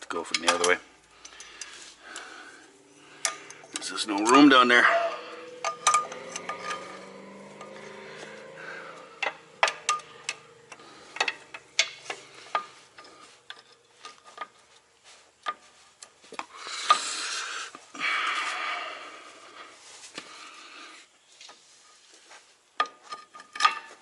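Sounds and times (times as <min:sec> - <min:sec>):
metal tool clicks and taps: 0:09.2 - 0:14.5.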